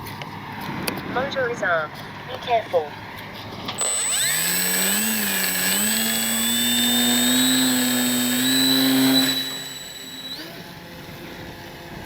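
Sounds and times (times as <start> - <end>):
electric model plane motor whining: 3.8 - 11.0.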